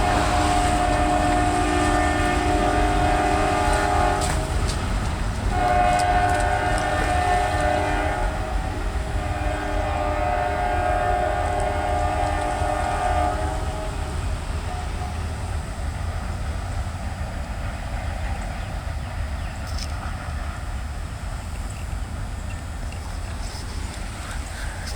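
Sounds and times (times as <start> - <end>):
locomotive air horn: 0.0 - 15.6, 22.9 - 24.9.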